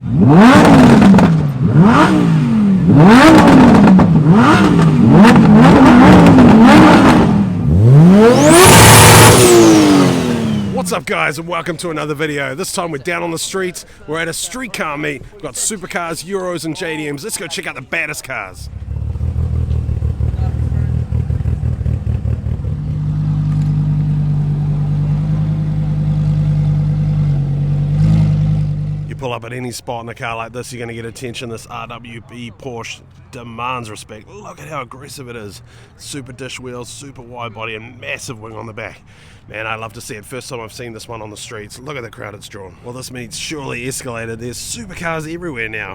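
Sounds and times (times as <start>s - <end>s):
car engine revving: 0.0s - 11.1s, 18.7s - 29.2s.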